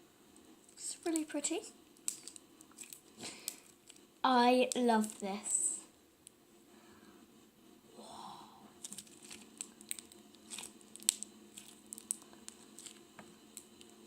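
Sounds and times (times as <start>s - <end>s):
putty clicks and crackles: 0.4s - 4.1s, 4.7s - 5.3s, 8.8s - 14.0s.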